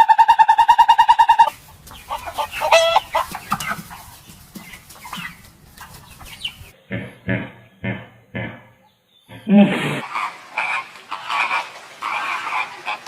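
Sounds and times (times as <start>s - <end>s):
rapid pulsing call: 0.0s - 7.1s
chickens clucking: 0.0s - 8.7s, 9.3s - 13.0s
low spaced animal calls: 6.1s - 13.0s.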